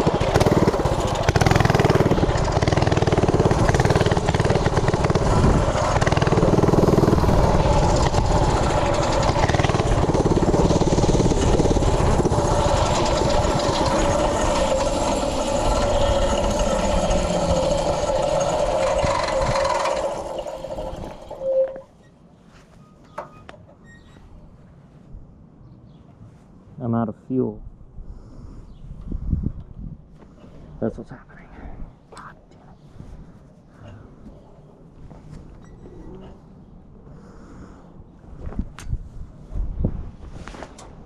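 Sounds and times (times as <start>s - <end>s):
mini bike engine running: 0.0s - 21.8s.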